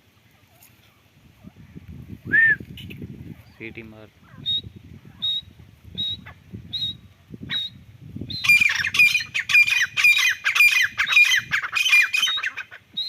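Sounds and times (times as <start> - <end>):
partridge calling: 2.8 - 13.0.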